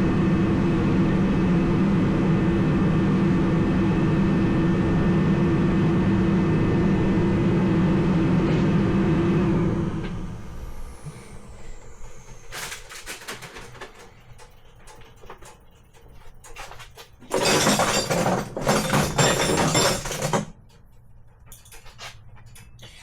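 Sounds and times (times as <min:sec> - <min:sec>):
rattling and rummaging: 0:12.5 - 0:20.9
hand tools and metal clinking: 0:12.5 - 0:23.0.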